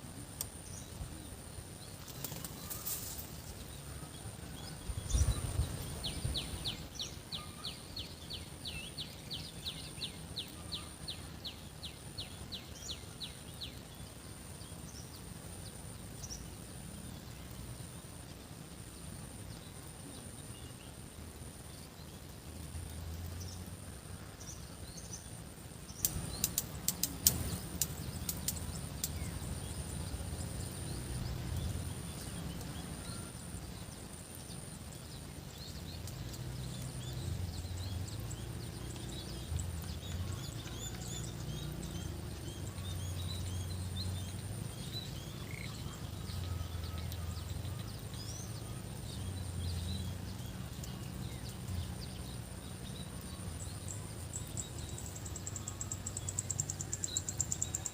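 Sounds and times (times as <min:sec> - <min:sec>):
insect drone: 0:00.0 - 0:57.9
small birds chirping: 0:00.0 - 0:57.9
sharp clicks: 0:26.0 - 0:29.2.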